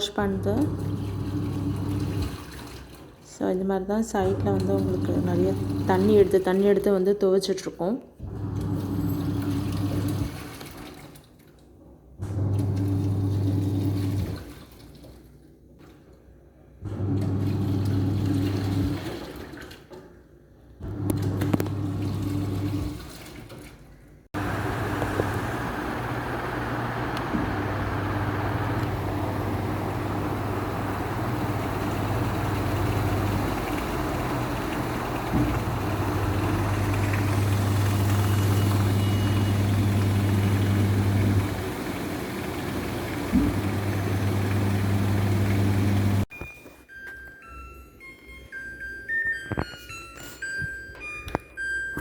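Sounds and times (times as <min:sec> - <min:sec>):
washing machine drum motor humming: 0:00.0 - 0:03.2, 0:04.1 - 0:06.7, 0:08.2 - 0:11.1, 0:12.2 - 0:14.7, 0:16.8 - 0:19.6, 0:20.8 - 0:23.4, 0:24.3 - 0:46.3
washing machine knock: 0:28.9 - 0:38.4, 0:39.0 - 0:45.7.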